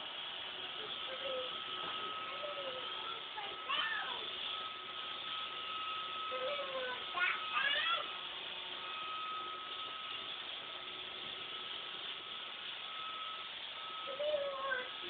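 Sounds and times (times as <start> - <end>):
robot vacuum whirring: 0.0 - 15.0.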